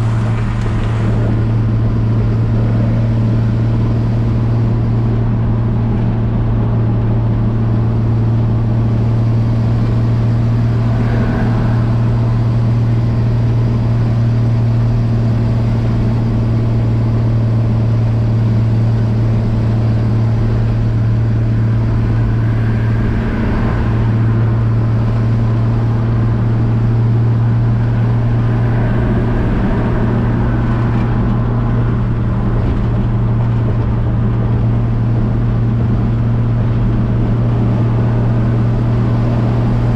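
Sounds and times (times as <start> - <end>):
pickup truck engine cruising: 0.0 - 39.9
road noise: 0.0 - 39.9.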